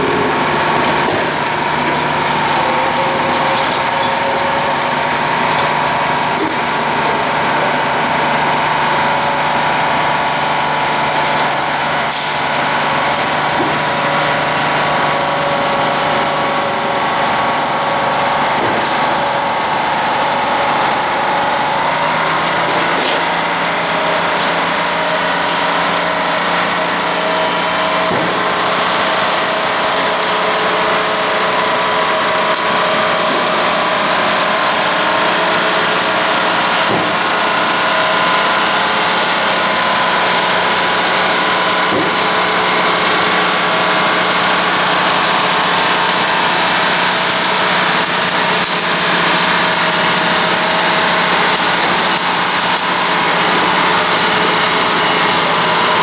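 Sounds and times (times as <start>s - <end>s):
railcars clanking and rattling: 0.0s - 9.4s, 16.0s - 56.0s.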